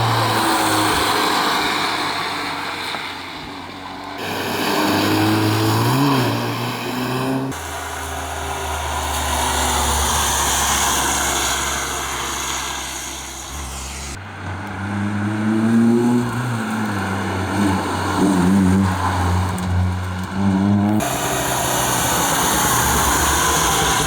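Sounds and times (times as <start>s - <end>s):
car revving through gears: 0.0s - 24.0s
rally car engine: 0.0s - 24.0s
wind noise: 18.9s - 24.0s.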